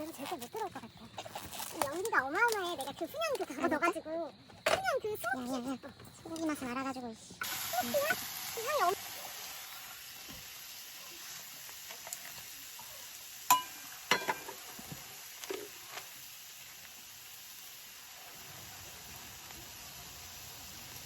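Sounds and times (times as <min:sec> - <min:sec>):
beef sizzling: 0:06.2 - 0:21.0.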